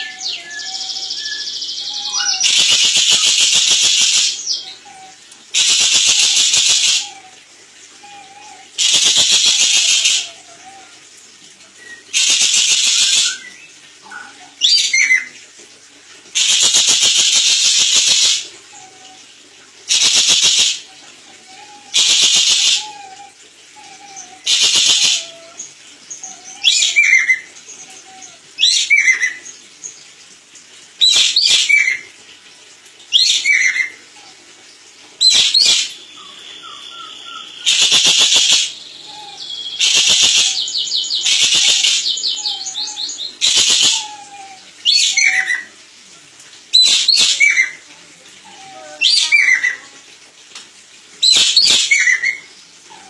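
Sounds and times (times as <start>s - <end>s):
bird harsh rattling call: 2.1s - 4.5s, 5.6s - 7.1s, 8.8s - 10.3s, 12.1s - 13.4s, 16.4s - 18.4s, 19.9s - 20.8s, 22.0s - 23.0s, 24.5s - 25.4s, 35.2s - 35.9s, 37.6s - 38.8s, 39.8s - 42.6s, 43.4s - 44.1s, 51.2s - 52.3s.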